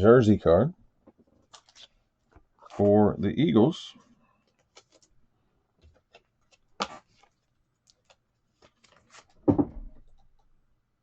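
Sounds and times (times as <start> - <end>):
cards clicking and rustling: 1.2 - 2.9, 4.4 - 5.2, 5.8 - 9.4.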